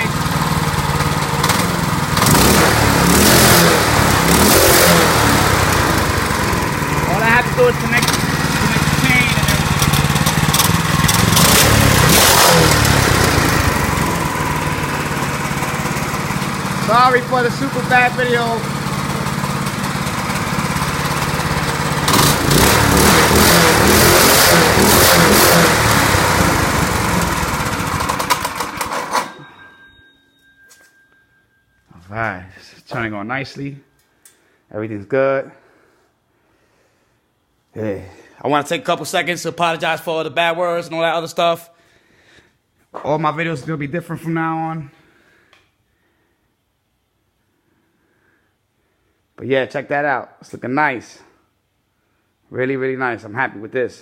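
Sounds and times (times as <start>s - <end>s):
single-cylinder engine revving: 0.0s - 29.3s.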